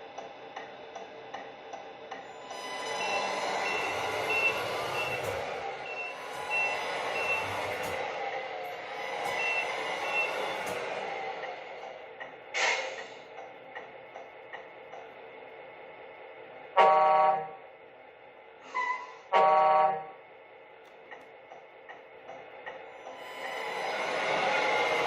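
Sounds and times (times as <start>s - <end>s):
truck air horn blasts: 16.8s - 17.6s, 19.3s - 20.1s.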